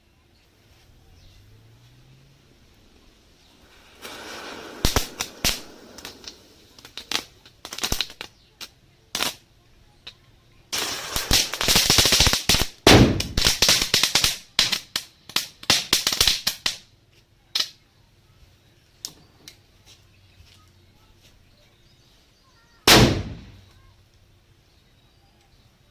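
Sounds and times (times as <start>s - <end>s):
rapid firecracker crackle: 0.5s - 17.8s, 22.8s - 23.9s
firecracker hiss: 0.6s - 9.5s, 10.7s - 16.9s, 22.8s - 23.8s
firecrackers banging: 2.5s - 9.5s, 10.7s - 16.8s, 22.9s - 23.8s.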